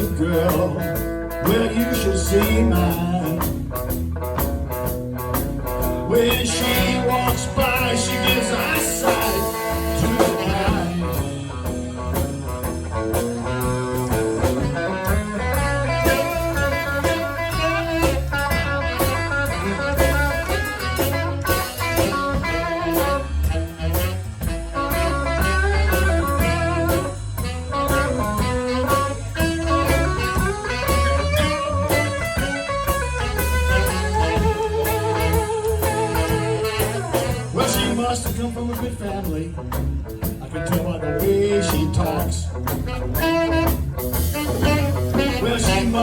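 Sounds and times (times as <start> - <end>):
lead guitar bending notes: 0.0 - 38.8, 39.6 - 46.0
blues band playing: 0.0 - 46.0.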